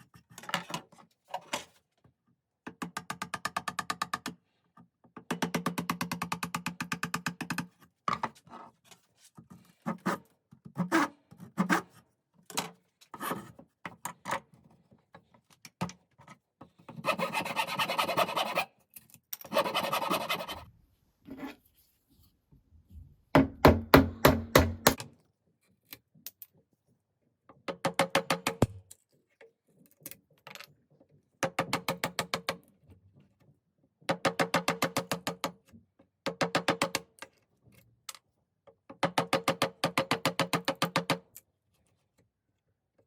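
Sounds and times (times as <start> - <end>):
rasp filing wood: 17.0 - 18.7, 19.5 - 20.6.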